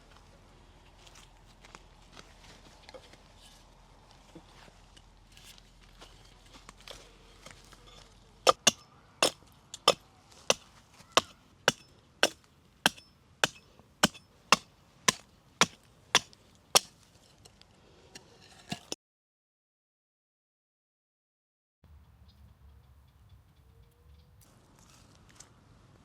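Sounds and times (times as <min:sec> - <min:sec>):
blade chopping wood: 0:08.5 - 0:17.0, 0:18.7 - 0:19.0.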